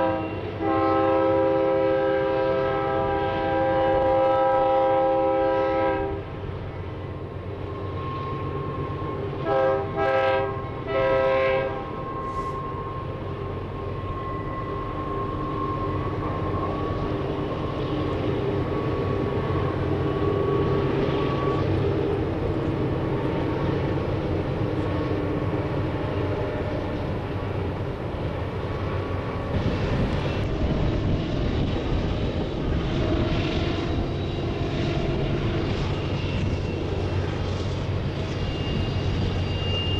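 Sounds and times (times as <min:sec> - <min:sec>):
multi-tone horn blasts: 0:00.0 - 0:06.3, 0:09.4 - 0:12.6.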